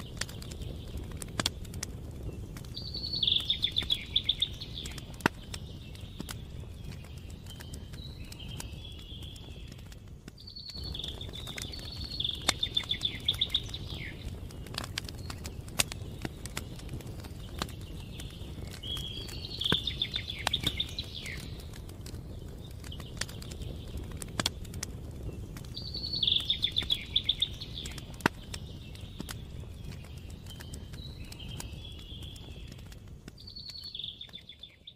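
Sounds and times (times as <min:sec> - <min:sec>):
campfire crackling: 0:00.0 - 0:34.9
songbird trilling: 0:02.8 - 0:05.1, 0:10.5 - 0:14.3, 0:25.8 - 0:28.1.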